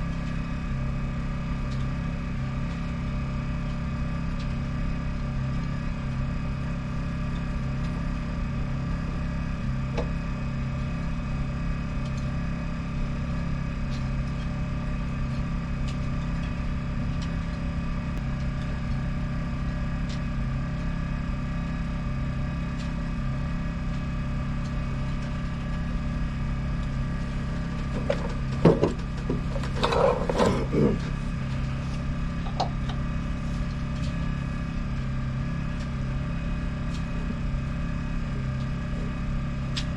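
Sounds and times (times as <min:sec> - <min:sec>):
boat engine idling: 0:23.8 - 0:39.7
knocks and rattles: 0:27.8 - 0:31.1.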